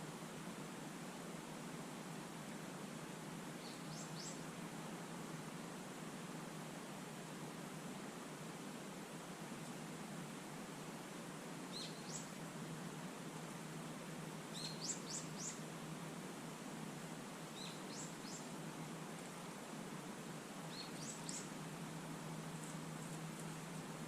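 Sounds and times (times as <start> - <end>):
background hiss: 0.0 - 24.0.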